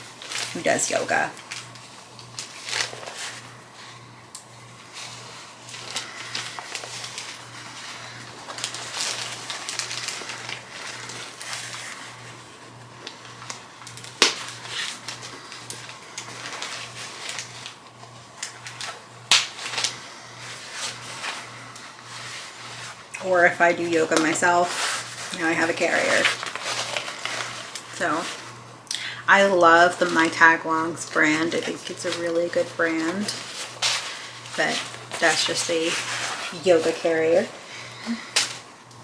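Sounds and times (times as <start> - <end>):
packaging crinkling and rustling: 0.0 - 28.7, 29.3 - 39.0.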